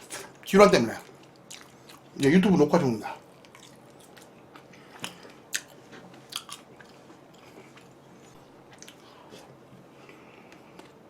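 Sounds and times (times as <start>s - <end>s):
person chewing food: 1.0s - 2.2s, 3.2s - 11.0s
crunchy bites: 3.5s - 7.9s.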